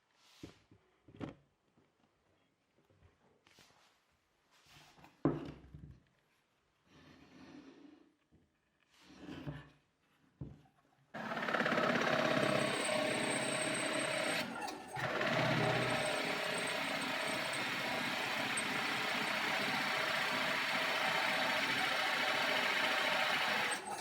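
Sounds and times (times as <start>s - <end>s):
motor-driven machine running: 11.2s - 24.0s.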